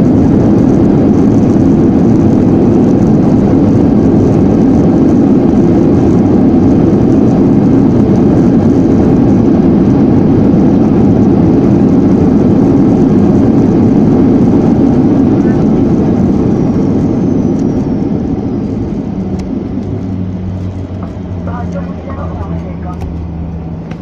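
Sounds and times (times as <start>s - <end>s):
airliner engines roaring: 0.0s - 24.0s.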